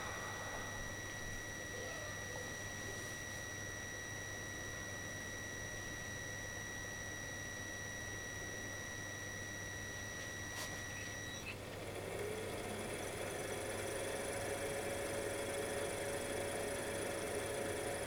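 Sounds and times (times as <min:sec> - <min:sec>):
steady high-pitched tone: 0:00.0 - 0:11.2.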